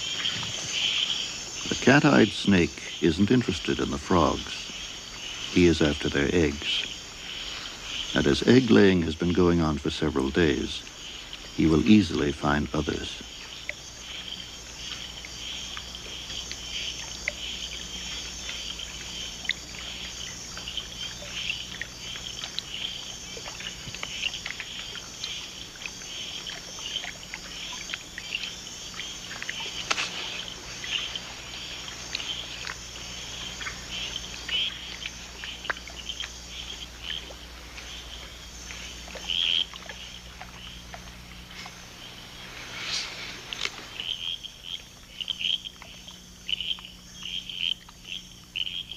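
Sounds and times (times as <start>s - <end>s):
frogs calling: 0.0s - 48.9s
insects chirping and trilling: 0.0s - 48.9s
low steady hum: 0.0s - 48.9s.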